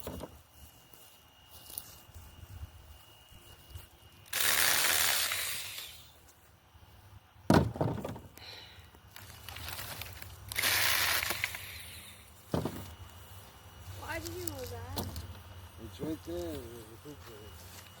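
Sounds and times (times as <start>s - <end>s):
battery chainsaw cutting branches: 4.2s - 6.1s, 9.6s - 12.2s.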